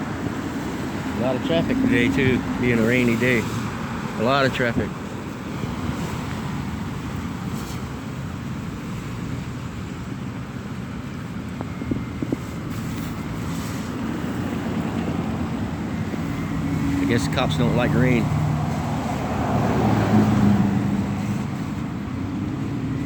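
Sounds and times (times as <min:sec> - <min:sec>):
wind buffeting microphone: 0:00.0 - 0:17.4
traffic on wet road: 0:00.0 - 0:23.0.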